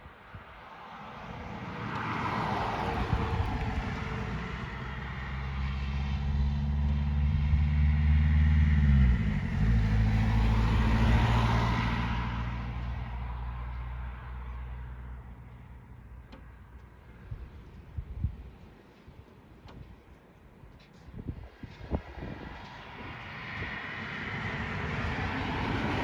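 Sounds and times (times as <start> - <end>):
motor vehicle passing by: 1.5 - 15.3, 22.2 - 26.0.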